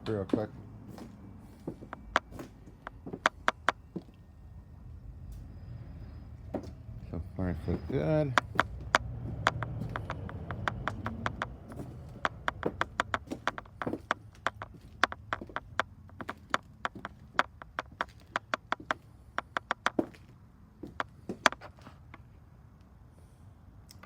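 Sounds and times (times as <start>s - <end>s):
handling rumble: 6.4s - 21.9s
footsteps on hard floor: 8.4s - 20.2s.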